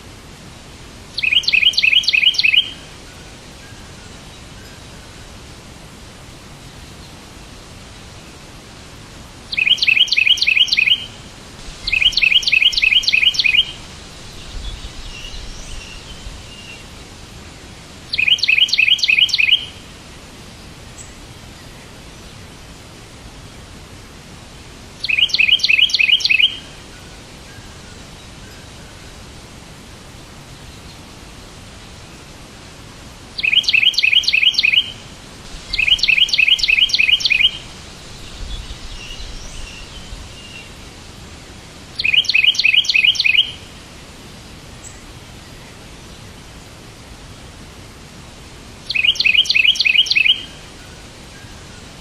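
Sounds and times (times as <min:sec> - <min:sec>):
background hiss: 0:00.0 - 0:52.0
bird chirping: 0:01.2 - 0:02.8, 0:09.5 - 0:11.2, 0:11.8 - 0:17.0, 0:18.1 - 0:19.8, 0:25.0 - 0:26.7, 0:33.4 - 0:40.9, 0:42.0 - 0:43.7, 0:48.9 - 0:50.6.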